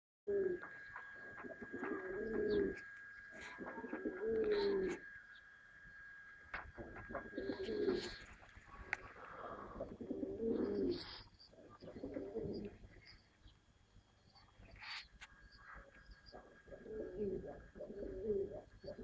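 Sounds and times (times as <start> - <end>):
pigeons cooing: 0.3 - 5.1, 6.5 - 13.2, 14.4 - 19.0
thin high tone: 0.3 - 13.3.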